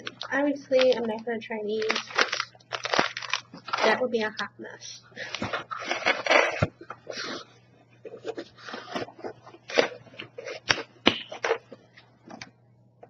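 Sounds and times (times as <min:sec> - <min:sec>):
plastic wrappers crinkling: 0:00.0 - 0:04.5, 0:05.2 - 0:06.8.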